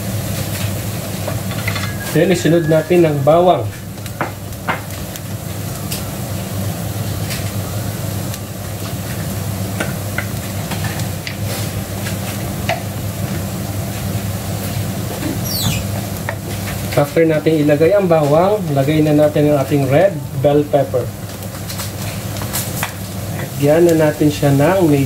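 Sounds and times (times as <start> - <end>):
steady low hum: 0.0 - 15.3
onions sizzling in a skillet: 0.0 - 25.0.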